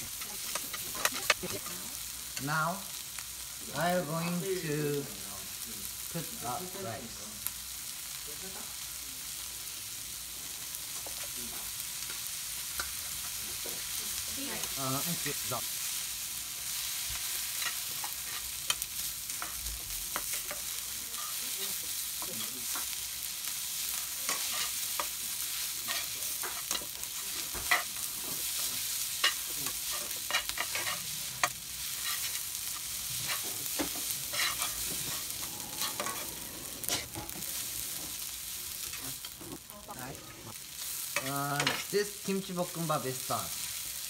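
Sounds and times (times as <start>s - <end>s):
fried rice sizzling in a wok: 0.0s - 44.0s
spatula clicking and scraping a pan: 0.1s - 2.5s, 12.0s - 13.9s, 16.8s - 39.4s, 40.6s - 41.9s.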